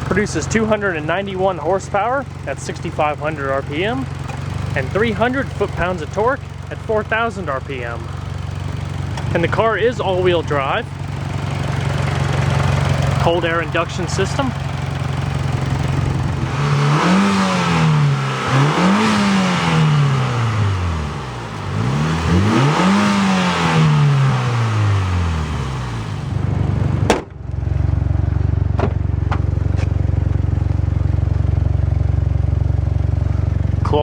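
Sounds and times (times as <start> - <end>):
car engine idling and revving: 0.0 - 34.0
sharp engine knock: 27.1 - 27.4.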